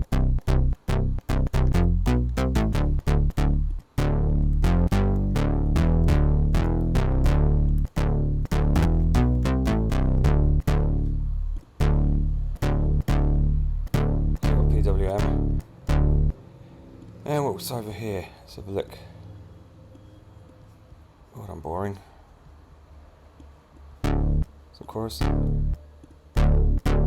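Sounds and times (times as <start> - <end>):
synth notes: 0.0 - 17.0, 24.0 - 24.6, 25.2 - 25.8, 26.4 - 27.0.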